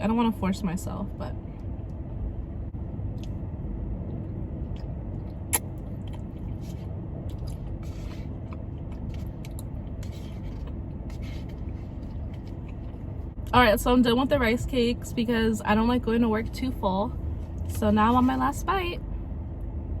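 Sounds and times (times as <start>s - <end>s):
car air conditioning hum: 0.0s - 20.0s
person chewing food: 4.1s - 13.3s
mouth smacks: 4.7s - 6.6s.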